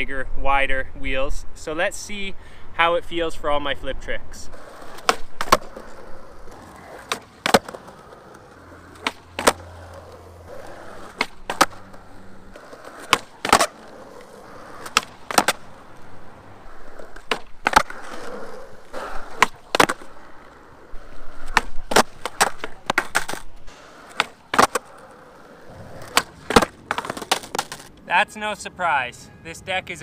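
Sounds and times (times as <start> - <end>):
skateboard wheels rolling: 3.2 - 28.1
skateboard cracking and slapping: 4.5 - 28.0.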